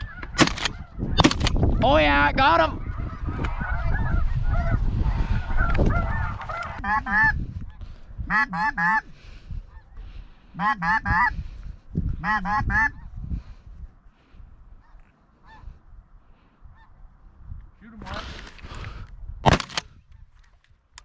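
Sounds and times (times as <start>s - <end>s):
geese honking: 0.0s - 7.4s, 8.3s - 9.1s, 9.7s - 11.4s, 12.2s - 13.1s, 14.8s - 15.8s
wind rumble: 0.0s - 21.0s.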